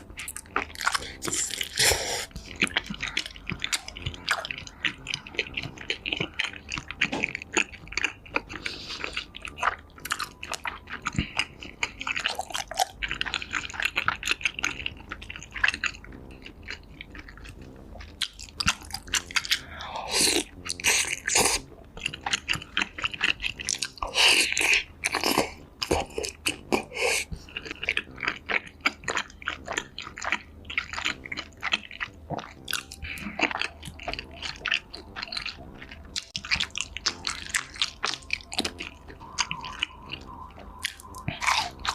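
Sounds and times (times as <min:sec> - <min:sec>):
chewing with wet clicks: 0:00.0 - 0:41.9
food crunching: 0:00.0 - 0:41.9.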